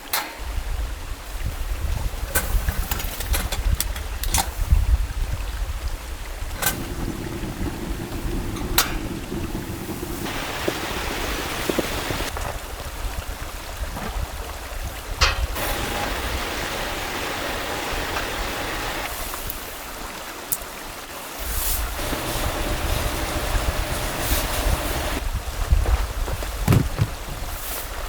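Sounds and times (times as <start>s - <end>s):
water rushing: 5.4s - 25.2s.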